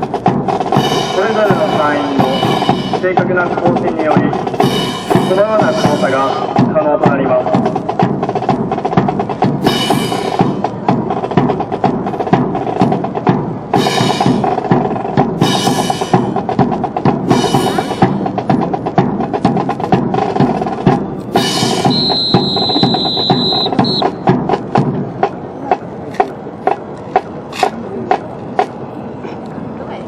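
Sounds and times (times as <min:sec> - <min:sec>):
drum-like percussion: 0:00.0 - 0:28.9
whistle blasts: 0:21.6 - 0:24.3.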